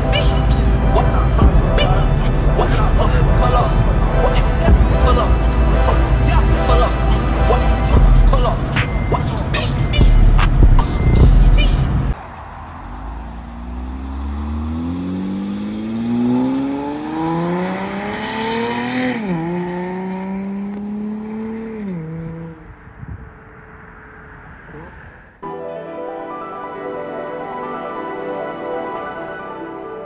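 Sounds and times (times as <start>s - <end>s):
music: 0.0s - 12.1s, 25.4s - 30.0s
car engine accelerating past: 12.5s - 25.3s.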